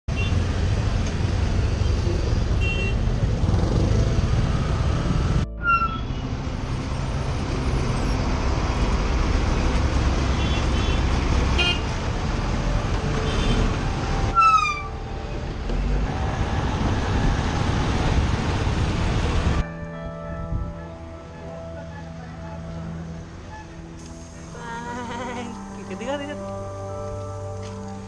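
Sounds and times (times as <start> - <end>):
traffic rumble: 0.1 - 28.0
vehicle horn toots: 2.6 - 3.1, 10.4 - 11.9, 13.3 - 13.8.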